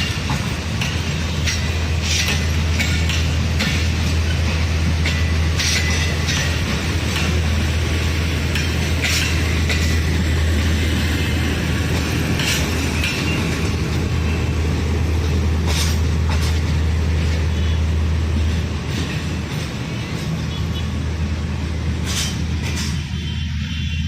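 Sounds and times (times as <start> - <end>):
sharp metallic clacks: 0.0 - 7.5
locomotive engine drone: 0.0 - 24.0.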